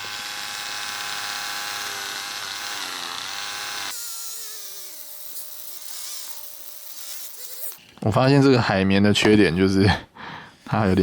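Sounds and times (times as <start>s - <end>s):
electric polishing tool whining: 0.0s - 7.8s.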